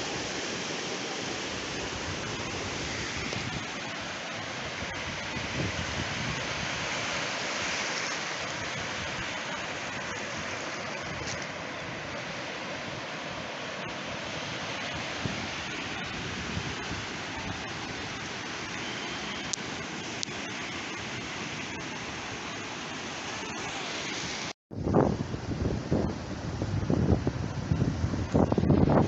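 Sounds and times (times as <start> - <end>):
wind buffeting microphone: 4.6 - 7.0, 24.7 - 29.0.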